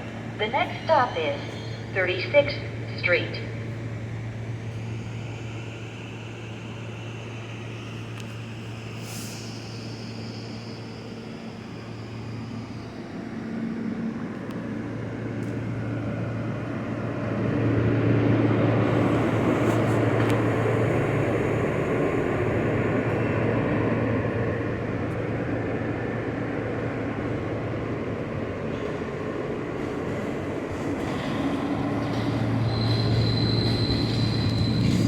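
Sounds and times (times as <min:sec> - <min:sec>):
subway train humming: 0:00.0 - 0:35.0
high squeal: 0:08.9 - 0:13.2, 0:32.6 - 0:35.0.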